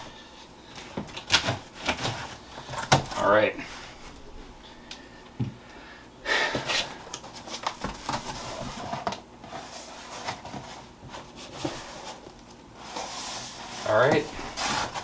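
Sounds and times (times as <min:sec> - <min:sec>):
cardboard box rustling and scraping: 0:06.6 - 0:12.2, 0:12.8 - 0:15.0.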